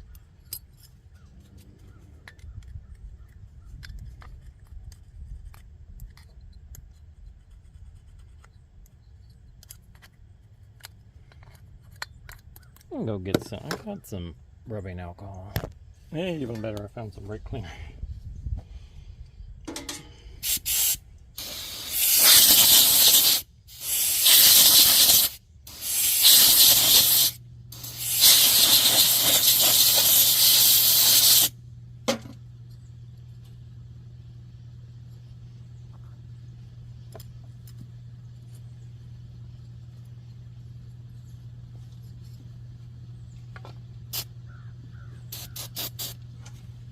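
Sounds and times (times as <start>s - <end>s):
low steady hum: 0.0s - 22.0s, 25.3s - 46.9s
aerosol spray blasts: 20.4s - 31.5s, 45.3s - 46.2s.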